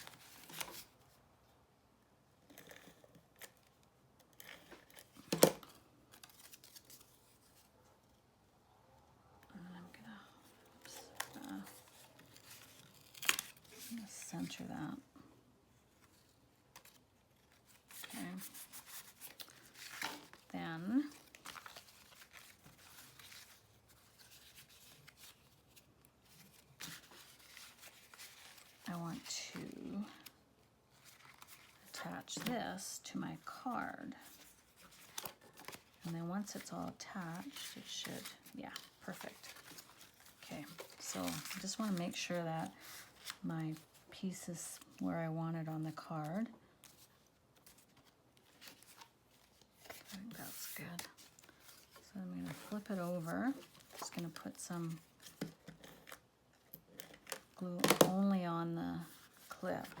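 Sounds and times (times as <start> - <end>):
paper rustling: 4.4 - 7.8, 10.6 - 14.8, 15.8 - 30.3, 30.9 - 32.6, 33.6 - 44.1, 46.3 - 58.2, 59.0 - 60.0.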